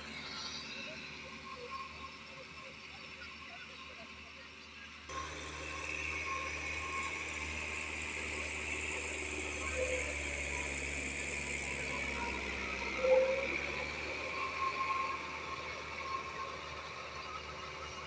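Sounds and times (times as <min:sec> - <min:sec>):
tractor engine running: 0:05.1 - 0:18.0.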